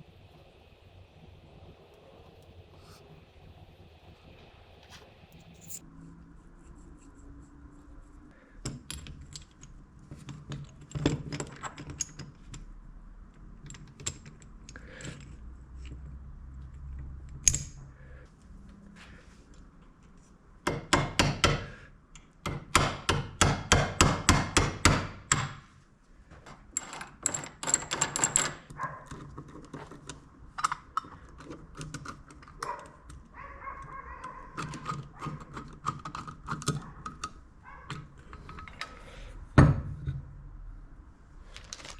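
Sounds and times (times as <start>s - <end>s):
metal parts clinking and knocking: 5.4s - 5.8s, 8.6s - 12.6s, 17.4s - 17.8s, 26.4s - 33.2s, 33.9s - 39.0s.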